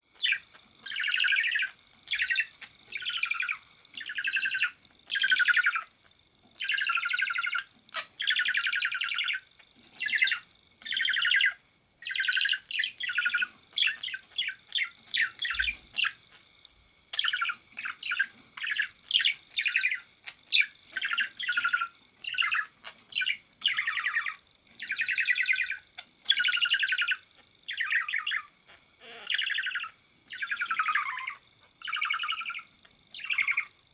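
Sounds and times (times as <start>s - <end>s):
parrot squawking: 29.0s - 32.2s.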